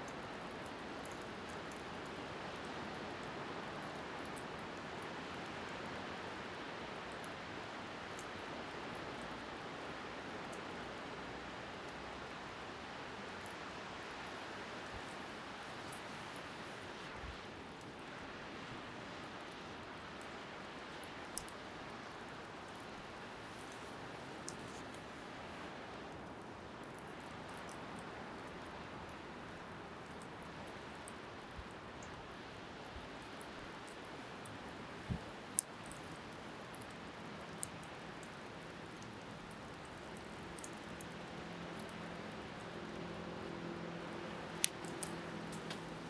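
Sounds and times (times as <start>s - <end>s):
bonfire crackling and popping: 0.0s - 46.0s
wind: 0.0s - 46.0s.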